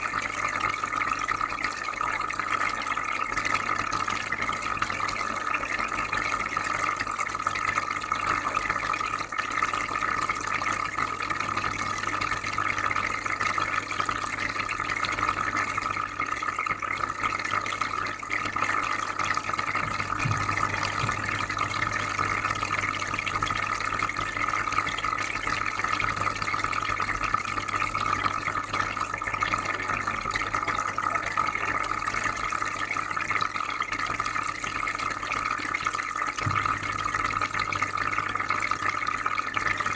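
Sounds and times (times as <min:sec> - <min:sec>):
bubbling and trickling water: 0:00.0 - 0:39.9
low electrical hum: 0:19.5 - 0:26.3.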